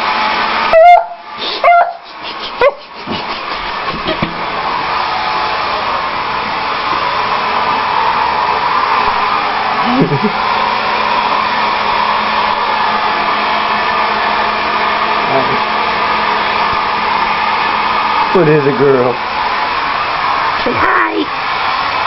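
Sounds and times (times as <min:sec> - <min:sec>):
hair dryer blowing: 0:00.0 - 0:22.0
dog whining: 0:00.7 - 0:03.0.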